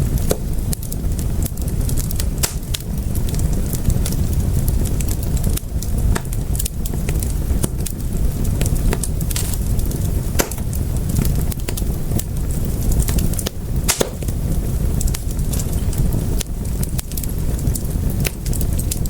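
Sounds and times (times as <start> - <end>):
low rumble of flames: 0.0 - 19.0
wood fire crackling: 0.0 - 19.0.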